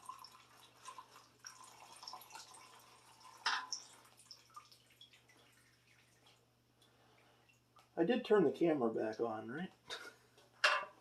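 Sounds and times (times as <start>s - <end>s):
liquid dripping into container: 0.0s - 8.0s.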